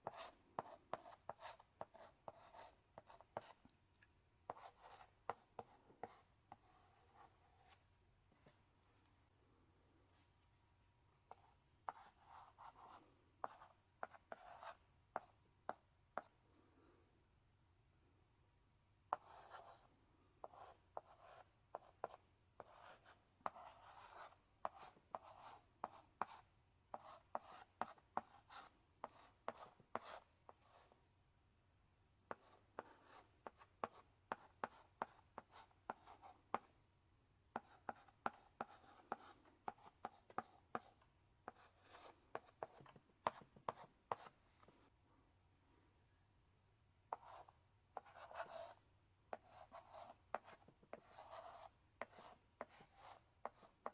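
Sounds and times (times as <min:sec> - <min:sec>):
chalk scratching on blackboard: 0:00.0 - 0:03.6, 0:04.5 - 0:07.8, 0:11.3 - 0:15.3, 0:19.1 - 0:31.0, 0:32.3 - 0:36.7, 0:37.6 - 0:44.7, 0:47.1 - 0:53.9
chalk tapping on blackboard: 0:04.5 - 0:07.3, 0:20.4 - 0:30.8, 0:37.6 - 0:44.3, 0:47.1 - 0:53.9.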